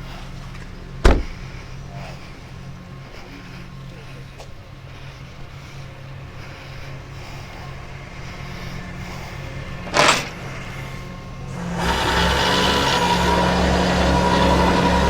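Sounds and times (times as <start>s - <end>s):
truck engine idling: 0.0s - 15.0s
sharp knock: 1.0s - 1.4s.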